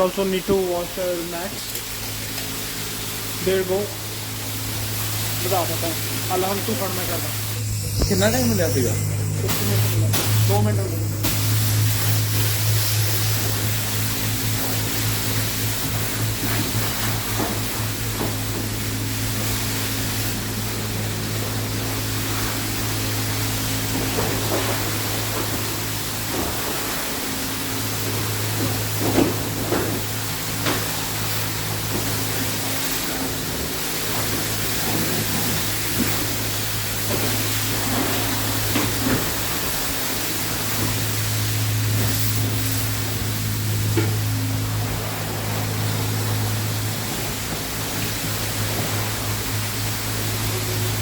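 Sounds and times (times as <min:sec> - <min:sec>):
equipment low hum: 0:00.0 - 0:51.0
pressure washer spraying water: 0:00.0 - 0:51.0.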